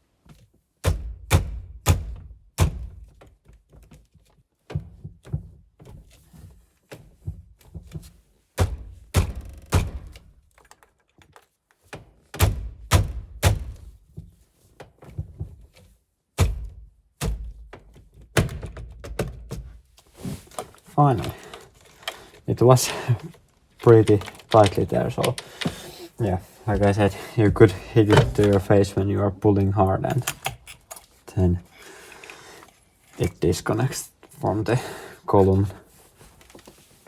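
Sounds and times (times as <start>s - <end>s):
heavy thunks of steering wheel: 4.7s - 10.5s, 12.4s - 14.4s, 27.6s - 28.7s.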